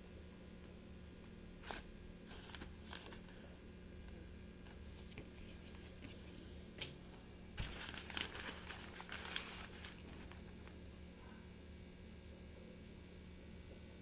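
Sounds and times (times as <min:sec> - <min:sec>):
packaging crinkling: 0:01.6 - 0:03.4, 0:07.6 - 0:10.8.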